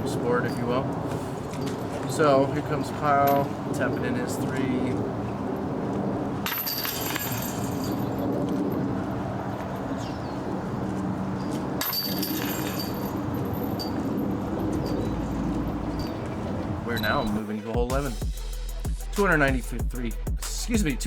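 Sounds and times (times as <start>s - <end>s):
low hum: 3.4s - 17.4s
discs striking metal chains: 6.4s - 8.3s, 11.8s - 16.3s.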